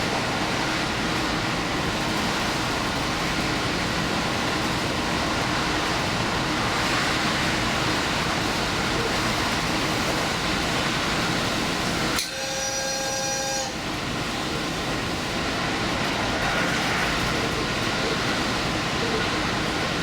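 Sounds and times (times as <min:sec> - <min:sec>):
train running on rails: 0:00.0 - 0:20.0
train horn blast: 0:12.1 - 0:14.0.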